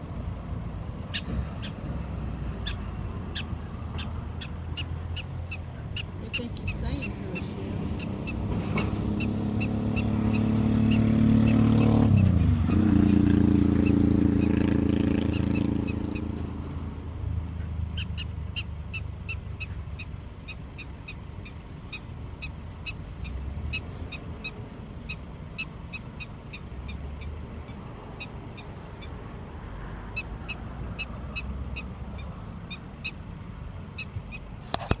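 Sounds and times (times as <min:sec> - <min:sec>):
vehicle engine running: 0:00.0 - 0:35.0
prairie dog barking: 0:02.6 - 0:14.6.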